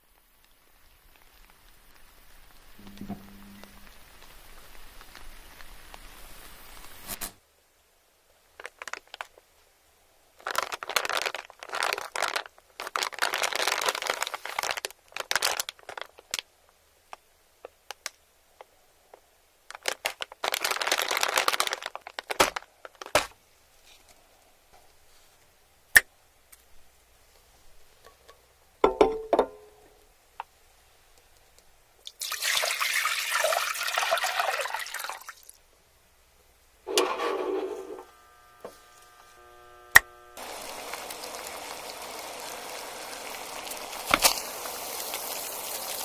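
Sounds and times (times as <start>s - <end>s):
plastic wrapping crinkling: 8.5s - 9.4s, 10.4s - 16.5s, 19.7s - 24.3s, 40.4s - 46.0s.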